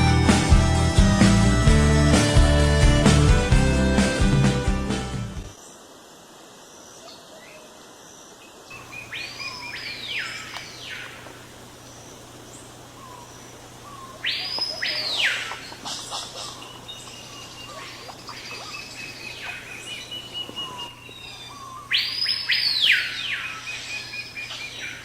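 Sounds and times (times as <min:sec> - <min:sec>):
bird calls sweeping up and down: 0:08.7 - 0:25.0.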